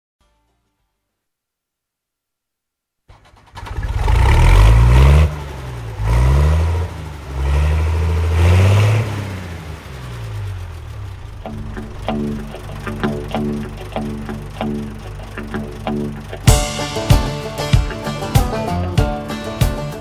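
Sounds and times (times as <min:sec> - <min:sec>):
small engine starting and revving: 0:03.1 - 0:20.0.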